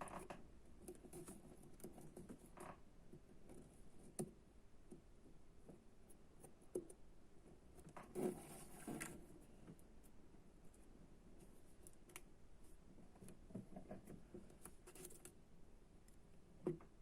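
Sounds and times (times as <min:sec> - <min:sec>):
scrape or rustle: 0:08.1 - 0:09.4.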